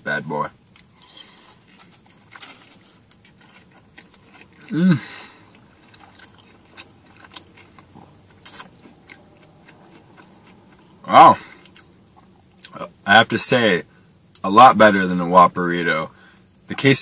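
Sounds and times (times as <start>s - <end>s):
person chewing food: 0.7s - 12.8s.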